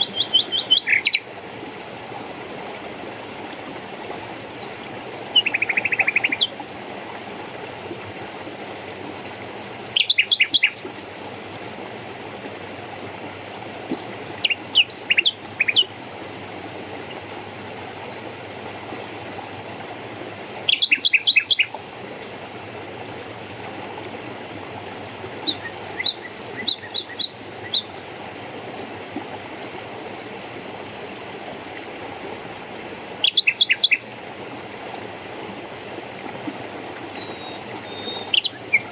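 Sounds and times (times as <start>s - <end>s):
songbird calling: 0.0s - 1.3s, 5.3s - 6.6s, 8.3s - 10.8s, 13.9s - 16.0s, 18.3s - 21.8s, 25.4s - 28.0s, 31.1s - 34.1s, 37.2s - 38.9s
stream rushing: 0.0s - 38.9s.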